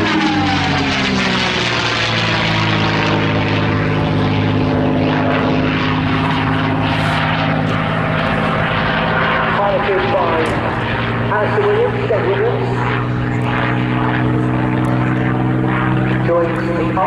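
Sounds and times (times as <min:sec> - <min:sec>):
propeller plane engine flypast: 0:00.0 - 0:17.0.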